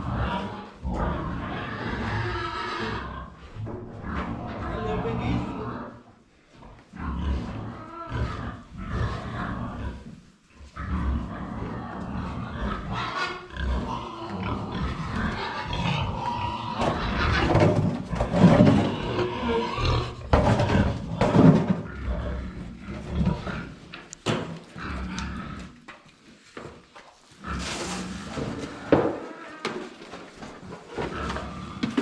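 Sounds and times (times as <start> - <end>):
farm animals calling: 0.0 - 3.5, 7.0 - 10.1, 10.7 - 26.5.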